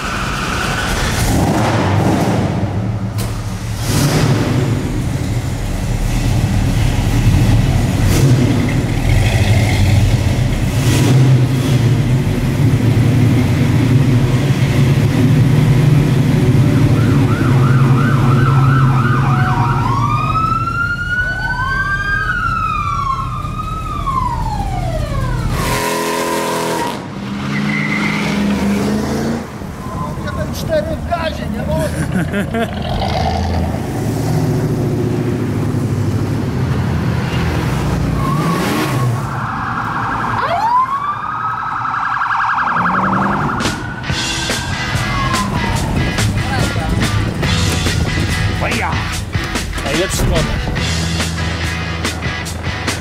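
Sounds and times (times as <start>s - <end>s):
siren yelping and wailing: 16.8s - 25.5s, 38.2s - 46.3s
car engine running: 43.4s - 53.0s.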